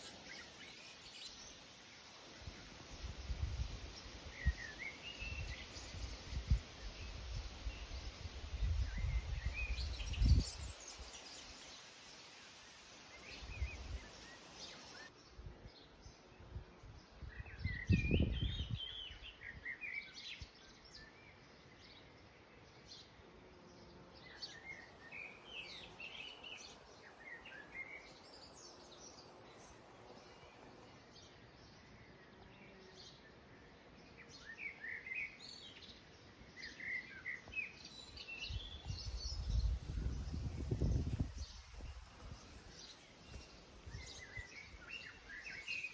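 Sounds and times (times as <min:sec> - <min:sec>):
birds chirping and singing: 0:34.0 - 0:45.9.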